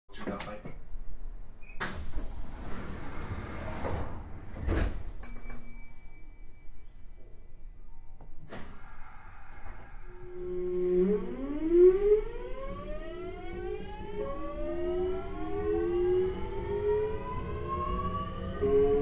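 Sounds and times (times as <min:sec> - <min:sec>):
train inverter whine rising: 0:09.0 - 0:19.0.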